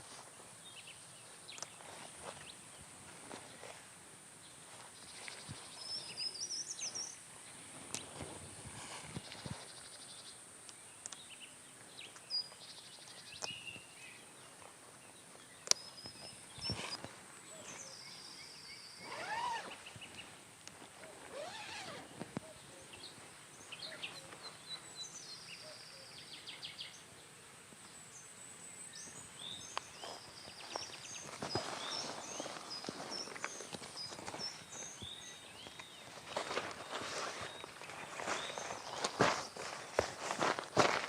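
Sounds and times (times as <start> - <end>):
birds chirping and trilling: 11.0 - 20.4, 27.9 - 40.6.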